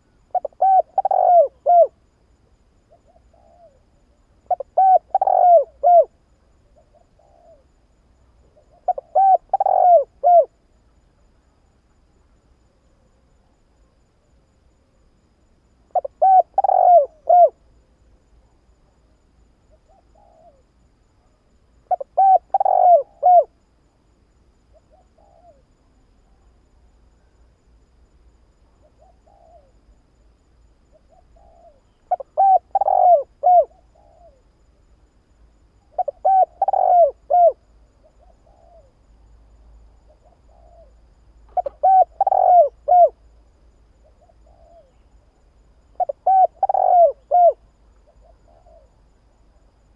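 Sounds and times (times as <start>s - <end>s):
dove cooing: 0.3s - 2.0s, 2.9s - 3.8s, 4.5s - 7.7s, 8.6s - 10.6s, 15.9s - 17.6s, 19.9s - 20.6s, 21.9s - 23.6s, 24.8s - 25.6s, 28.8s - 29.8s, 30.9s - 34.4s, 35.9s - 38.9s, 40.1s - 43.2s, 44.1s - 45.0s, 46.0s - 49.0s.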